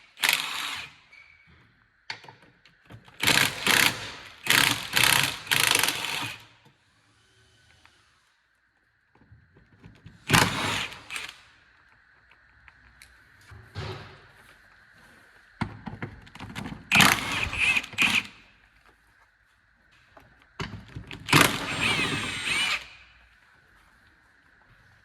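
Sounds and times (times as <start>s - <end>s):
power tool motor whine: 16.9s - 18.4s, 21.3s - 23.0s.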